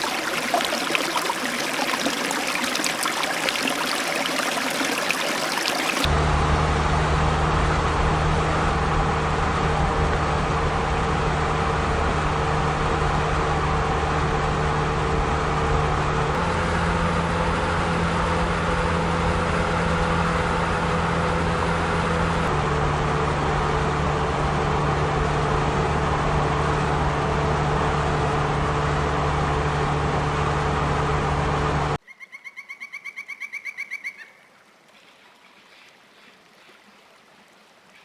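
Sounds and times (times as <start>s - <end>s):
road noise: 0.0s - 32.0s
car engine hum: 6.0s - 32.0s.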